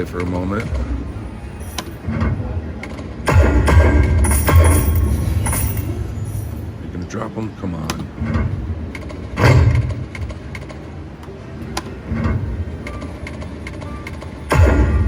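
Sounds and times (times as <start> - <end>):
slot machine heavy hits: 3.2 - 6.8, 9.4 - 10.0, 14.5 - 15.0
slot machine spin music: 3.3 - 6.8.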